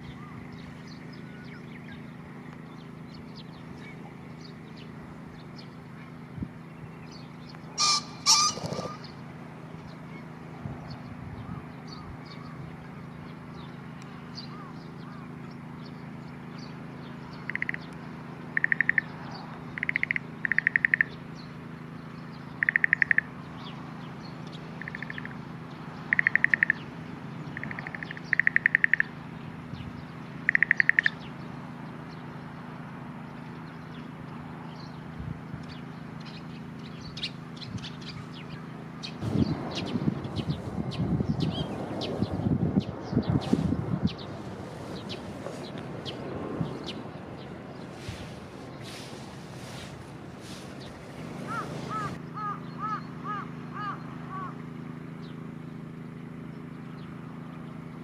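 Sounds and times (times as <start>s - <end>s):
rapid pulsing bird calls: 0.0s - 58.0s
steady low hum: 0.0s - 58.0s
pheasant crowing: 7.7s - 9.5s, 17.4s - 17.9s, 18.5s - 21.2s, 22.6s - 23.4s, 24.8s - 25.4s, 26.0s - 29.2s, 30.4s - 31.3s, 47.9s - 54.6s.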